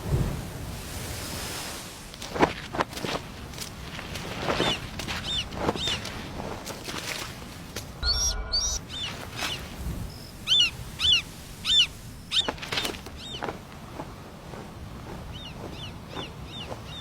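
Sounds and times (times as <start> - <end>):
bird of prey calling: 8.0 - 12.6.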